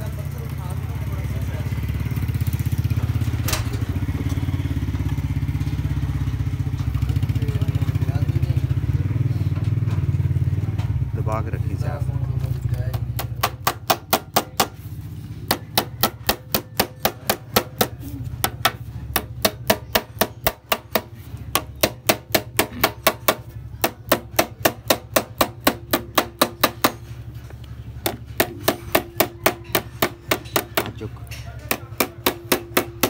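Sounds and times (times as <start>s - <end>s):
hammer tapping on metal: 12.9s - 14.8s, 15.5s - 27.1s, 28.0s - 33.0s.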